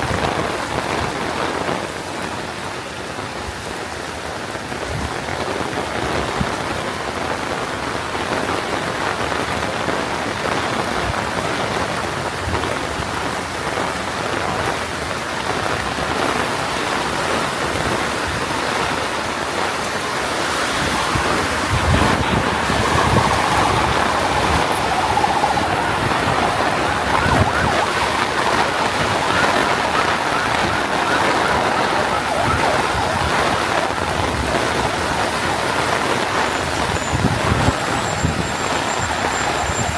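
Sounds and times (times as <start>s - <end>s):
heavy rain falling: 0.0s - 39.9s
vehicle motor hum: 18.9s - 39.9s.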